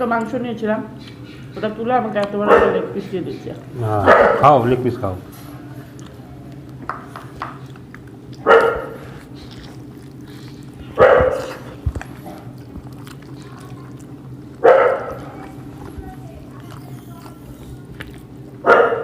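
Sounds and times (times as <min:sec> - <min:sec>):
steady low hum: 0:00.0 - 0:19.0
dog barking: 0:02.4 - 0:03.0, 0:04.0 - 0:04.6, 0:08.4 - 0:16.0, 0:18.6 - 0:19.0.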